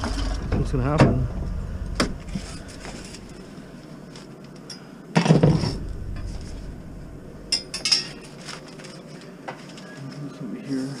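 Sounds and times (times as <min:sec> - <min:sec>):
sharp metallic clinks: 0:07.4 - 0:09.1.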